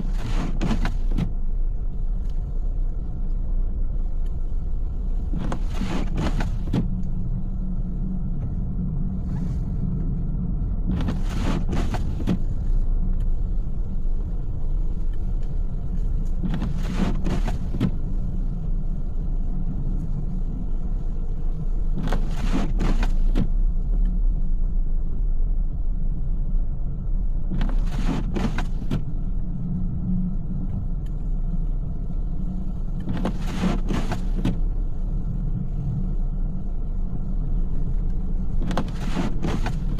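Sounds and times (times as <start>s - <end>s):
windshield wipers swishing: 0.0s - 1.4s, 5.2s - 7.3s, 10.8s - 13.7s, 15.1s - 18.6s, 20.6s - 24.1s, 27.4s - 29.3s, 32.6s - 36.2s, 37.3s - 39.9s
car engine and tyres rumbling: 0.0s - 39.9s.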